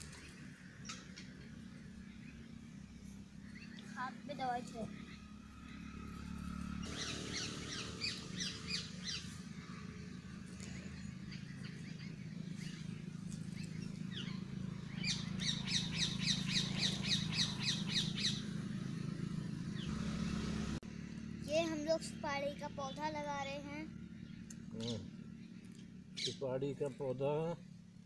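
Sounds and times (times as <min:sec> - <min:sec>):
steady low hum: 0:00.0 - 0:28.0
bird calling high notes: 0:03.5 - 0:12.9.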